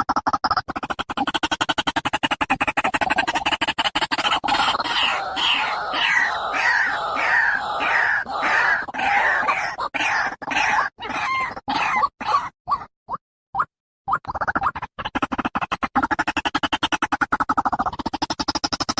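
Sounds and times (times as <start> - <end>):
waterhen calling: 4.3 - 12.5.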